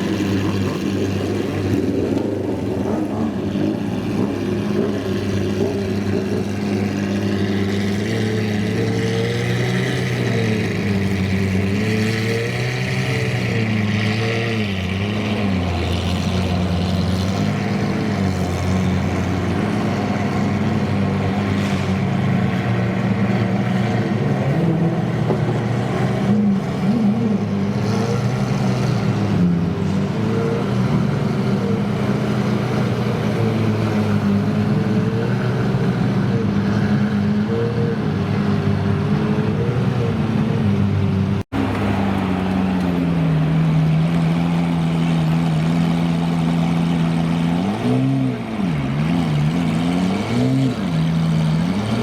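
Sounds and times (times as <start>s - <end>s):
car engine idling: 41.2s - 47.5s.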